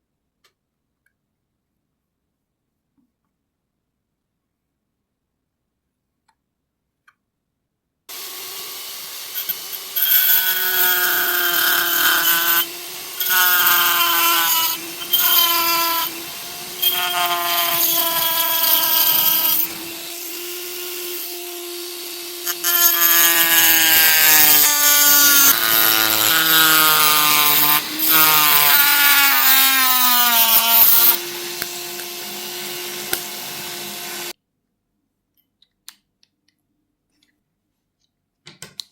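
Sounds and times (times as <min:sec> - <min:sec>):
rotary power tool grinding metal: 0:08.1 - 0:34.4.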